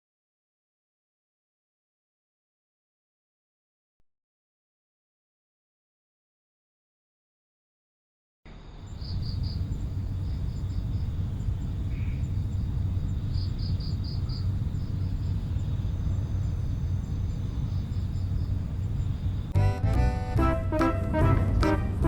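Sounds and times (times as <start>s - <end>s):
crickets chirping: 8.5s - 19.6s
low outdoor rumble: 8.5s - 22.0s
music: 19.6s - 22.0s.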